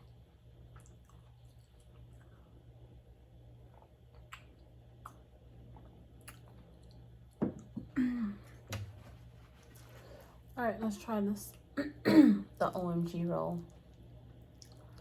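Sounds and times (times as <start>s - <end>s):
person chewing food: 0.0s - 7.8s, 13.7s - 15.0s.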